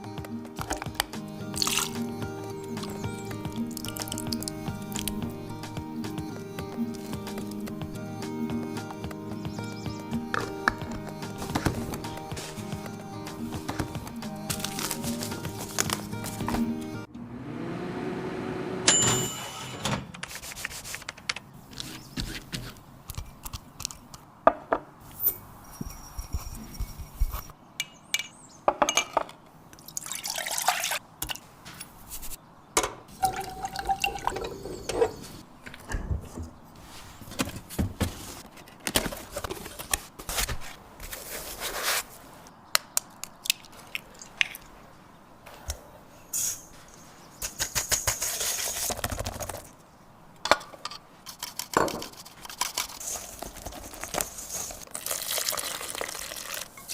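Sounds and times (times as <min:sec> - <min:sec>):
liquid dripping and pouring: 0:01.5 - 0:02.0, 0:02.7 - 0:05.2, 0:29.8 - 0:31.0, 0:33.2 - 0:35.2, 0:54.8 - 0:56.9.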